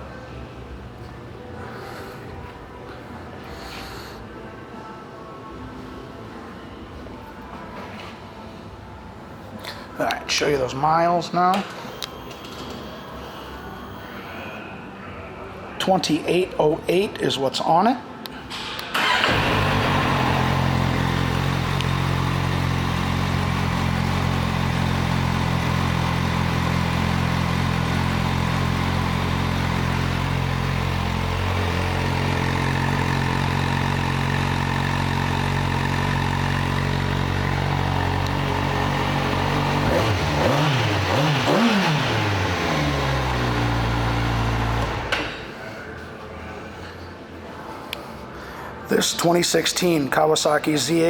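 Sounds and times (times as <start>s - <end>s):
motorcycle engine idling and revving: 19.0s - 45.2s.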